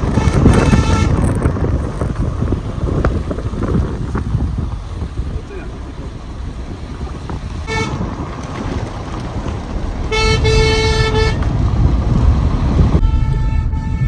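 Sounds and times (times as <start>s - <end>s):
car horn honking: 0.0s - 1.5s, 7.6s - 8.2s, 10.1s - 11.7s
vehicle driving rumble: 0.0s - 14.0s.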